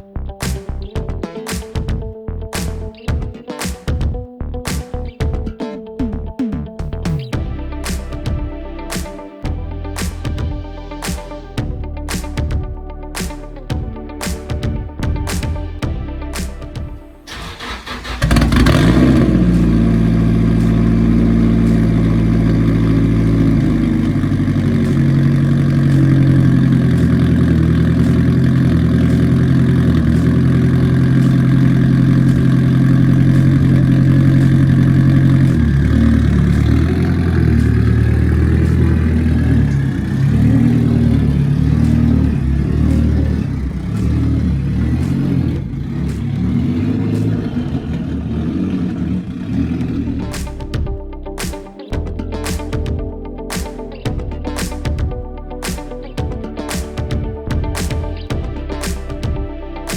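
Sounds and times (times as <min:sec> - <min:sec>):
car engine starting and idling: 0:15.7 - 0:51.4.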